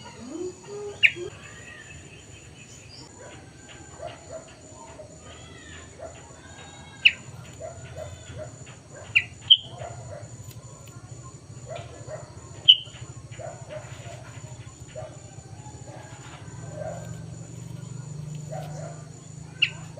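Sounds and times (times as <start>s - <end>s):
soft bird chirps and twitters: 0.0s - 19.9s
bulbul sharp calls: 4.0s - 19.9s.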